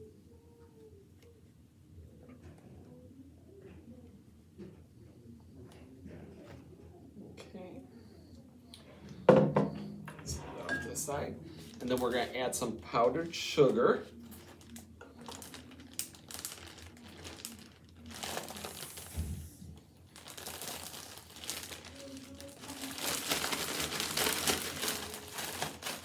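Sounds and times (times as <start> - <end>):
bag crinkling: 14.2 - 26.0.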